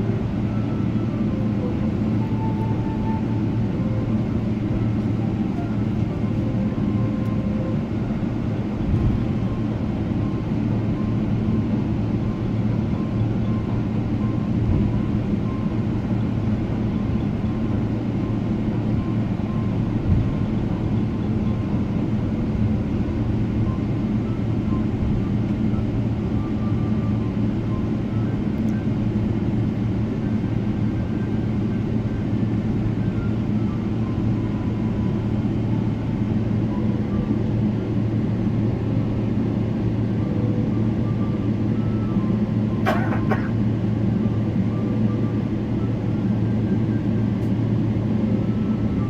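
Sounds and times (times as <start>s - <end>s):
airplane cabin engine drone: 0.0s - 49.0s
brief knock: 42.8s - 43.5s.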